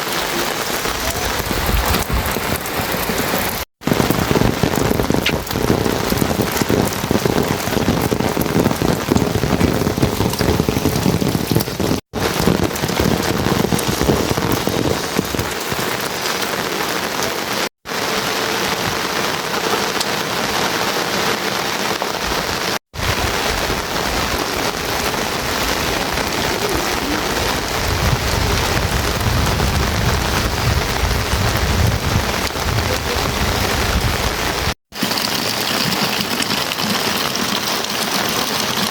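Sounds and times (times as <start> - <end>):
heavy rain falling: 0.0 - 38.9
deep low rumble: 23.0 - 34.4.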